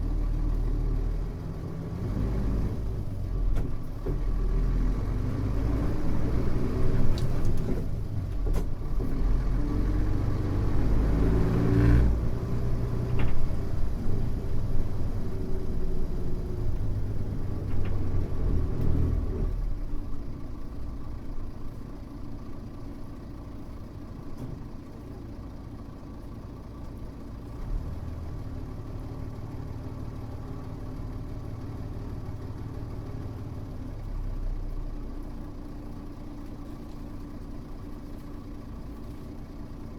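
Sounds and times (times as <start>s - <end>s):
bus diesel engine: 0.0s - 39.9s
light knocks and rattles: 13.0s - 13.8s.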